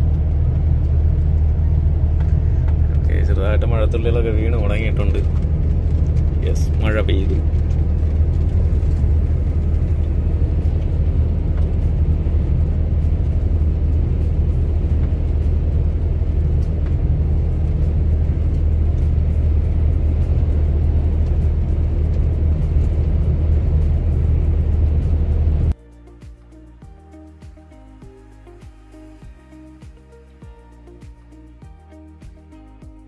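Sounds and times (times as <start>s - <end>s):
diesel truck engine drone: 0.0s - 33.0s.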